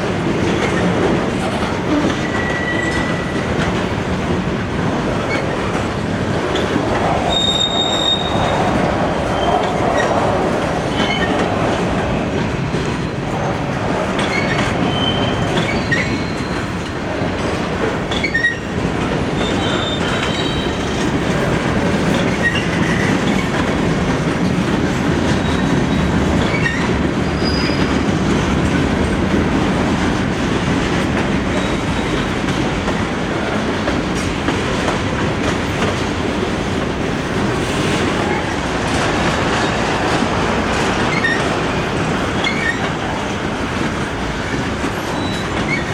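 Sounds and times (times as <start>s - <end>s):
freight train wheels rumbling on rails: 0.0s - 45.9s
wheels squealing: 7.2s - 8.7s, 14.2s - 16.7s, 41.1s - 41.4s.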